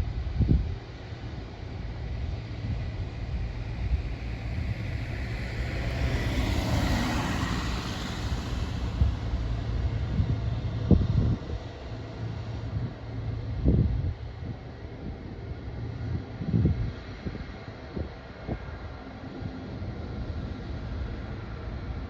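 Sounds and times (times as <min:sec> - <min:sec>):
wind buffeting microphone: 0:00.0 - 0:22.0
rushing noise of something passing: 0:03.4 - 0:11.6.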